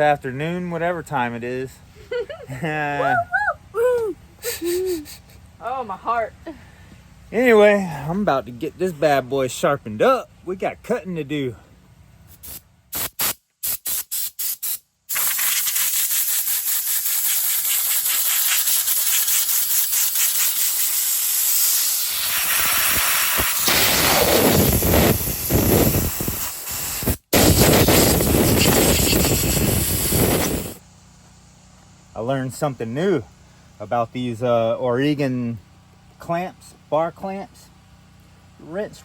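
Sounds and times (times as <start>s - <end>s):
chainsaw chain being sharpened: 12.3s - 23.7s.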